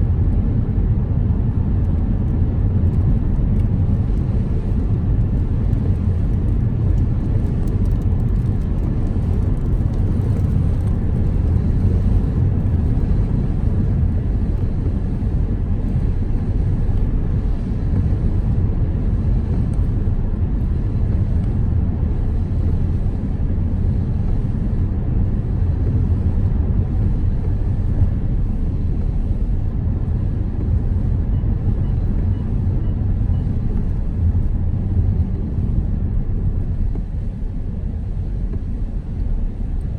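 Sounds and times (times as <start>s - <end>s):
car road and engine rumble: 0.0s - 39.9s
rain pattering: 4.8s - 14.7s.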